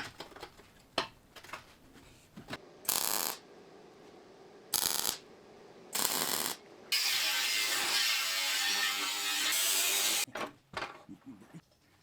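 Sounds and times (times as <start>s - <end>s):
welding arc crackling: 2.8s - 3.4s, 4.7s - 5.3s, 6.0s - 8.9s.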